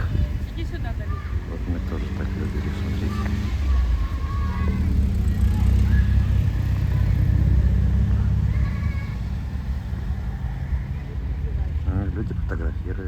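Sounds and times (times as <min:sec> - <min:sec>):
wind buffeting microphone: 0:00.0 - 0:08.4
children calling while playing: 0:00.0 - 0:11.8.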